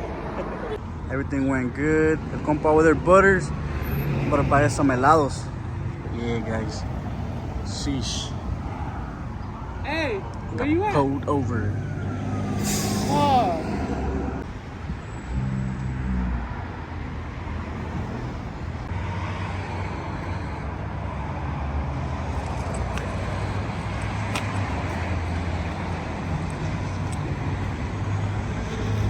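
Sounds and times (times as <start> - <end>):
road noise: 0.0 - 29.0
vehicle engine drone: 11.1 - 16.4, 22.2 - 29.0.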